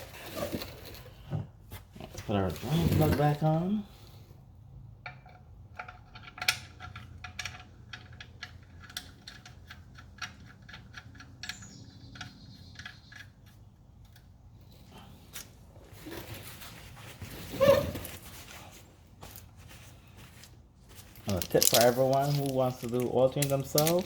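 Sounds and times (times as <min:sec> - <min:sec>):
small metal clicks and clinks: 0:21.3 - 0:24.0.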